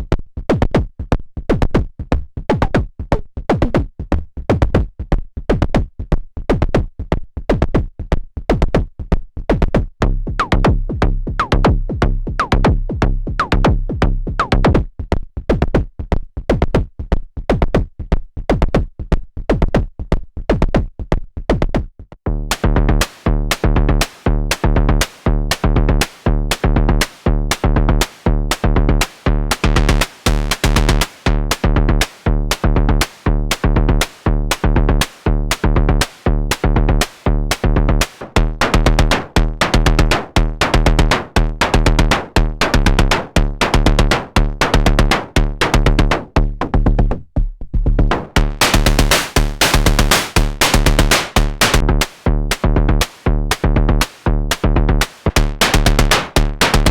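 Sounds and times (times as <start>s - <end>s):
synthesizer drum pattern: 10.4s - 14.8s, 22.3s - 56.9s
low pitched synth tones: 25.5s - 46.1s, 48.4s - 53.0s
steady pitched drone: 29.3s - 31.8s.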